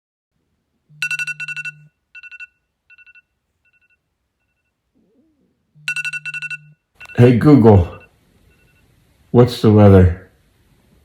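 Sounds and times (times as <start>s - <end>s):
phone ringing electronic trill: 0.9s - 4.8s, 5.8s - 8.9s
phone vibration buzz: 0.9s - 4.8s.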